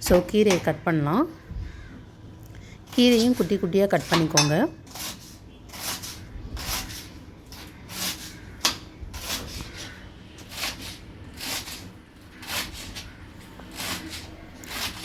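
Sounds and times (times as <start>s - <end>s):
knife slicing greens on board: 4.0s - 15.0s.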